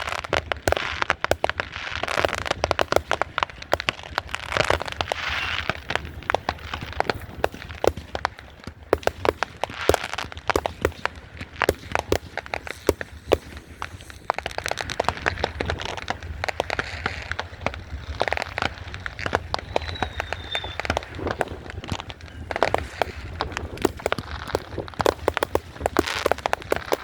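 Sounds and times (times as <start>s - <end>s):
fireworks cracking and popping: 0.0s - 27.0s
faint high whistle: 19.6s - 21.0s.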